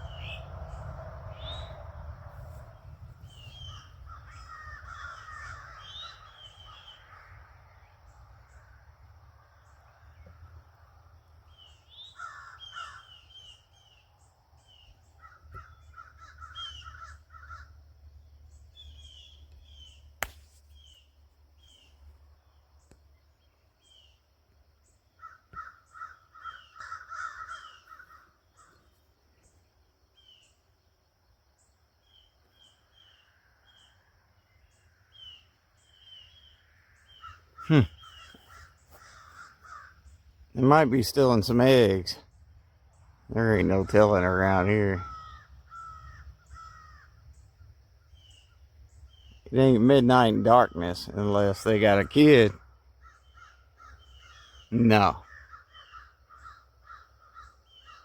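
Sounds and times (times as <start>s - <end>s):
low rumble: 0.0s - 4.2s
small birds chirping: 0.0s - 58.0s
crows cawing: 3.6s - 7.5s, 11.9s - 13.6s, 15.2s - 17.9s, 25.2s - 28.9s, 36.4s - 40.2s, 44.7s - 47.4s, 53.0s - 58.0s.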